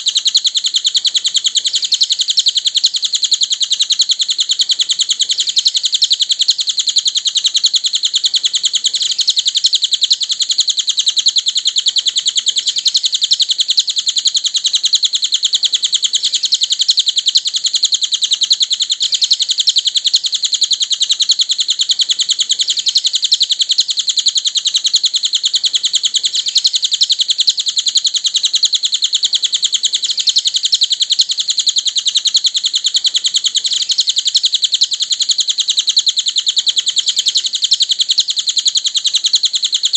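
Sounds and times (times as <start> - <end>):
songbird high-pitched trill: 0.0 - 39.9.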